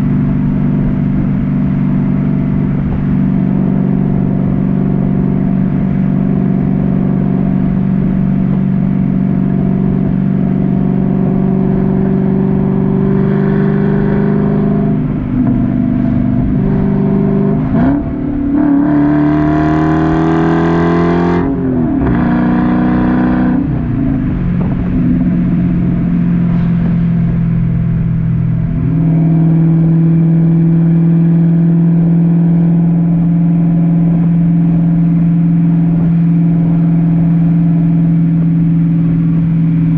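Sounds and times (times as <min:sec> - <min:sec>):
car exhaust drone: 0:00.0 - 0:39.9.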